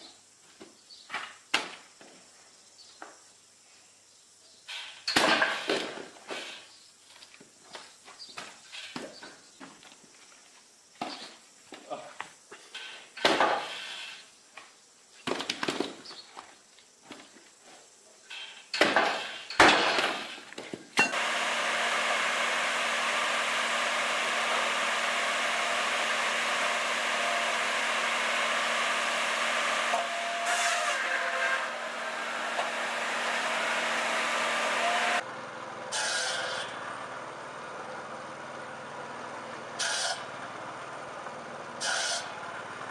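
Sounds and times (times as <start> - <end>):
power saw cutting wood: 21.1 - 37.0, 39.8 - 40.3, 41.8 - 42.6.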